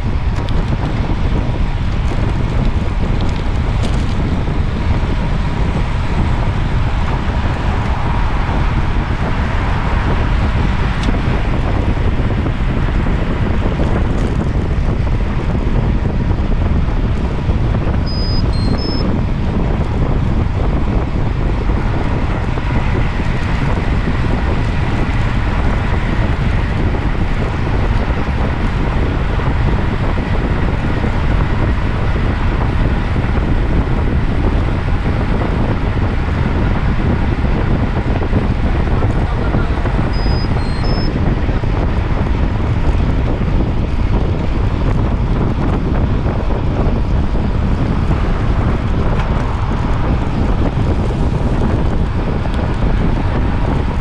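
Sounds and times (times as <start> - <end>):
wind buffeting microphone: 0.0 - 54.0
faint high beeps: 18.1 - 19.1, 40.2 - 41.1.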